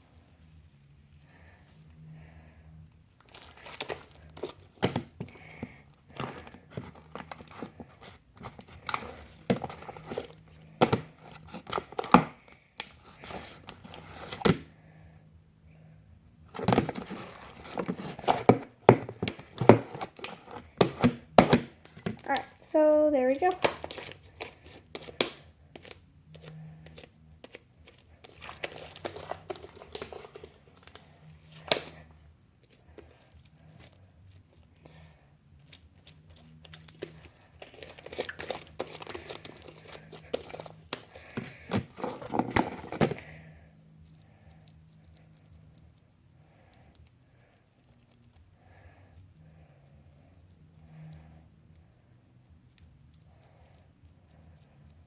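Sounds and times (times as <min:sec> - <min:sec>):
slime clicking and popping: 0:24.9 - 0:26.0.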